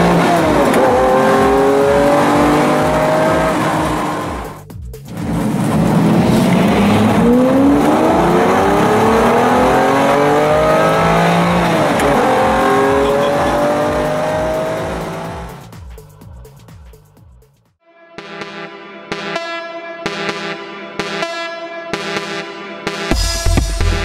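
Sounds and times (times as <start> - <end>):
racing car engine at full throttle: 0.0 - 15.8
steady low beat: 0.0 - 17.6.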